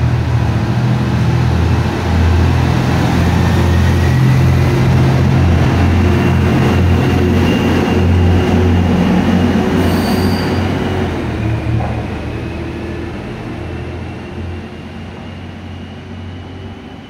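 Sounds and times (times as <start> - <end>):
diesel engine low drone: 0.0 - 9.8
train wheels rumbling on rails: 0.0 - 17.0.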